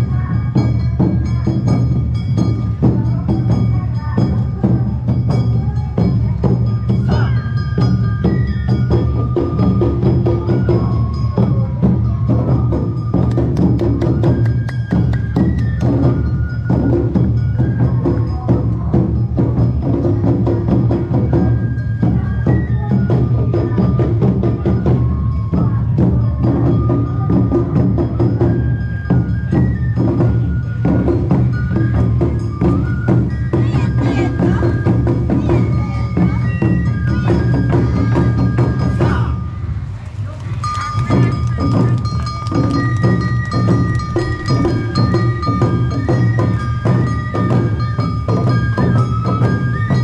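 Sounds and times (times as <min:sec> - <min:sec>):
bell strokes: 0:00.0 - 0:22.6, 0:40.6 - 0:50.0
drums: 0:00.0 - 0:50.0
high stepping melody: 0:41.0 - 0:49.0.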